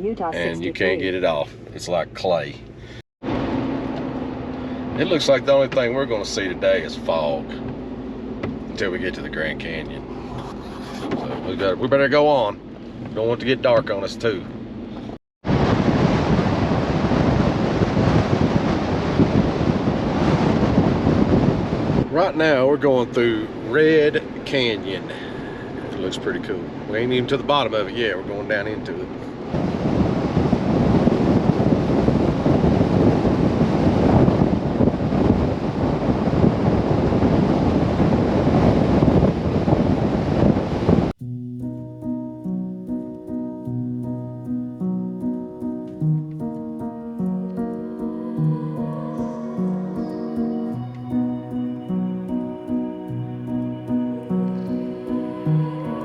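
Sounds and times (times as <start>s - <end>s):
truck road noise: 2.6s - 15.2s, 18.0s - 26.9s
wind rushing over microphone: 15.4s - 41.1s.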